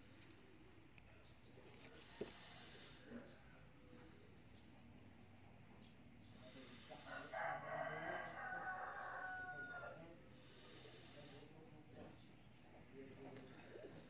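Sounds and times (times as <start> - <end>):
long crowing bird call: 7.1 - 10.0.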